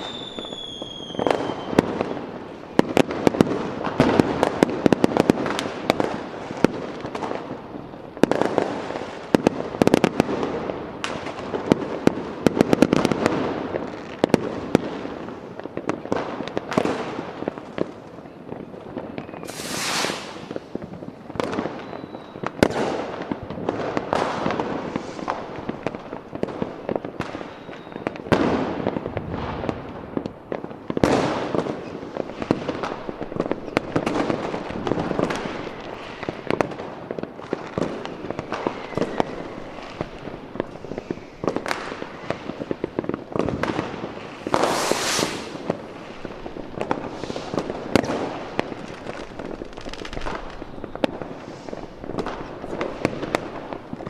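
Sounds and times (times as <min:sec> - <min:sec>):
fireworks bangs and crackling: 0:00.0 - 0:54.0
hissing rocket burst: 0:19.4 - 0:20.7, 0:43.6 - 0:48.5.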